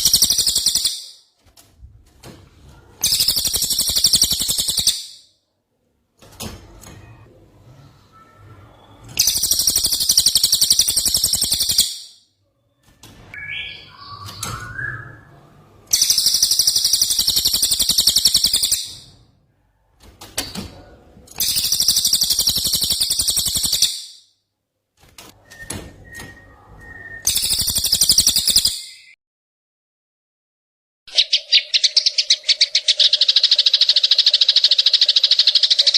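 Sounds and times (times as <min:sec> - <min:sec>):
bird singing high trilled bursts: 0:00.0 - 0:01.2, 0:03.0 - 0:05.3, 0:09.2 - 0:12.2, 0:15.9 - 0:19.1, 0:21.4 - 0:24.3, 0:27.2 - 0:29.2, 0:31.1 - 0:35.9.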